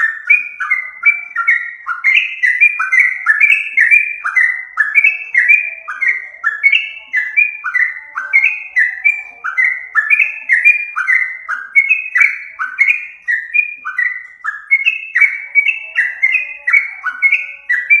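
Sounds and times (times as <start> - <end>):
birds calling with bubbly whistles: 0.0 - 18.0.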